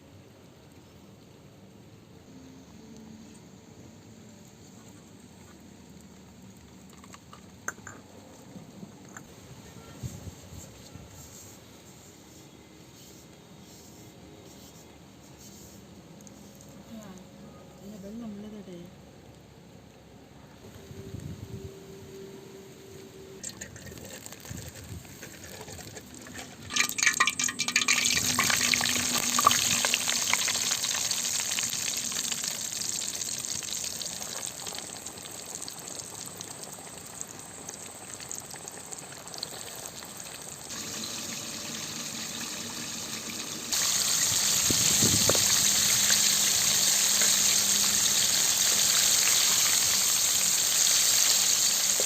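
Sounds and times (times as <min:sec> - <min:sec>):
chicken sizzling in hot oil: 0:23.4 - 0:52.0.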